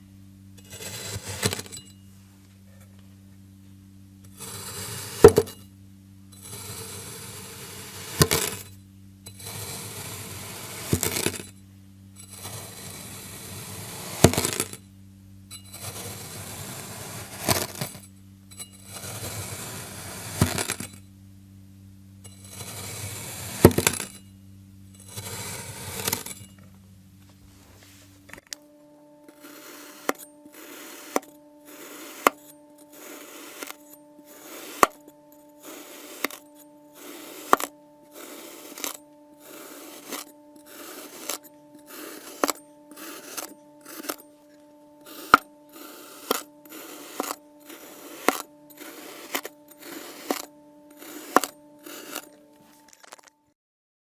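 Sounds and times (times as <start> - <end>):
low hum: 0.0 - 53.6
blade crunching through sand: 0.7 - 1.8, 6.4 - 8.7, 9.4 - 11.5, 12.4 - 14.8, 15.8 - 18.0, 18.9 - 21.0, 22.5 - 24.2, 25.0 - 26.5, 29.3 - 53.3.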